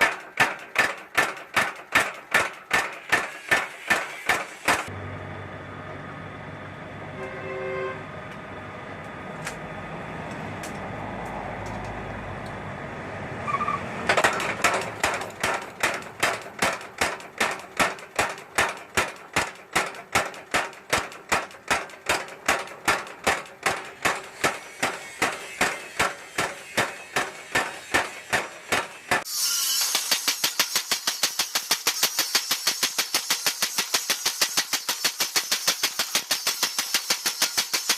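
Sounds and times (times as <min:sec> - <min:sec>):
hammer strikes on steel: 0:00.0 - 0:04.9, 0:14.1 - 0:37.9.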